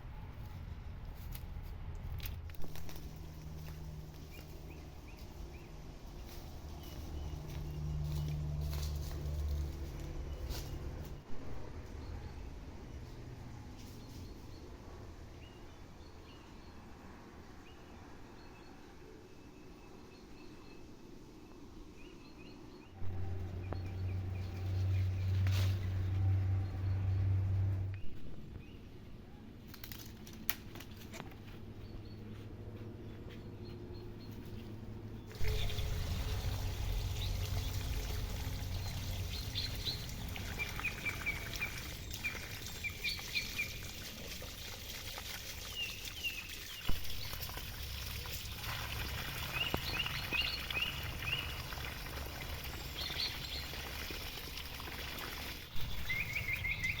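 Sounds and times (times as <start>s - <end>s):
water pouring and trickling: 2.6s - 11.3s, 35.3s - 57.0s
small birds chirping: 31.2s - 44.2s, 49.4s - 52.1s, 55.7s - 57.0s.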